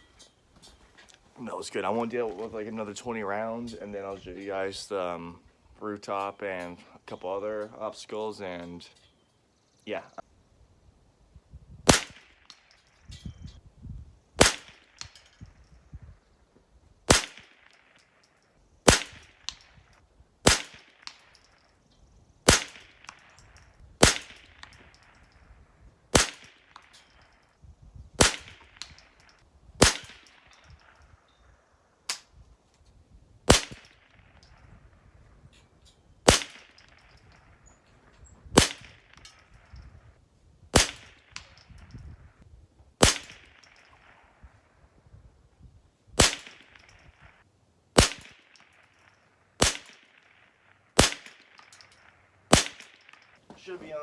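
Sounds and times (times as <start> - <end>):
rifle shots: 11.9 - 12.6, 14.4 - 15.2, 17.1 - 18.0, 18.9 - 19.6, 20.4 - 21.3, 22.4 - 23.3, 24.0 - 25.2, 26.1 - 27.0, 28.2 - 29.2, 29.8 - 31.0, 33.5 - 34.4, 36.3 - 37.1, 38.6 - 39.7, 40.7 - 41.6, 43.0 - 44.2, 46.2 - 47.0, 48.0 - 48.9, 49.6 - 53.8.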